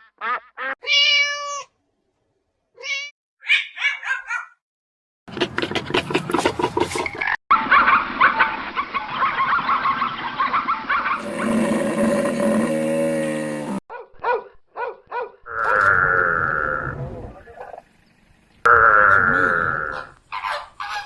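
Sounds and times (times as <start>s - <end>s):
animal squeals and grunts: 15.5s - 17.8s
long low animal call: 15.5s - 17.8s, 18.7s - 20.1s.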